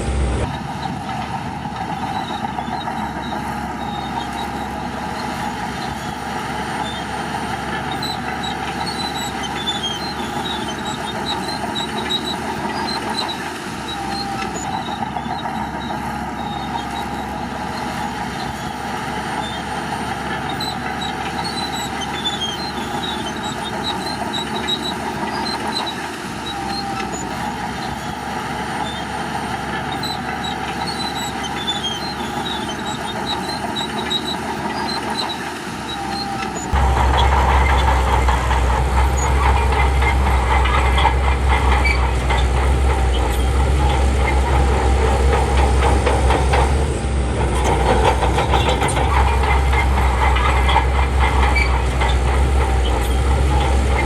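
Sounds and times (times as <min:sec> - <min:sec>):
bulldozer diesel engine under load: 0:00.0 - 0:54.0
high metallic squeaks: 0:00.1 - 0:54.0.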